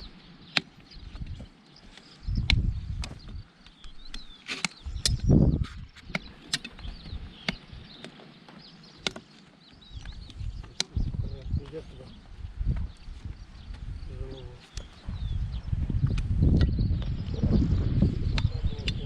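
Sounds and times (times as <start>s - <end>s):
trimming tools clicking on hoof: 0.4s - 11.8s, 18.3s - 19.0s.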